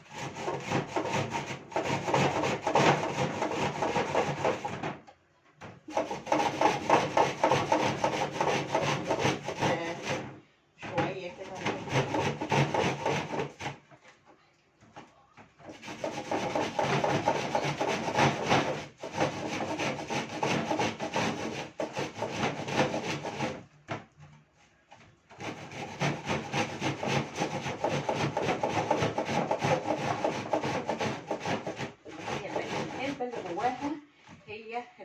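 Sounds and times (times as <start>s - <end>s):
onion grating on grater: 0.0s - 4.8s, 5.9s - 10.3s, 11.4s - 13.8s, 15.7s - 23.6s, 25.4s - 34.0s.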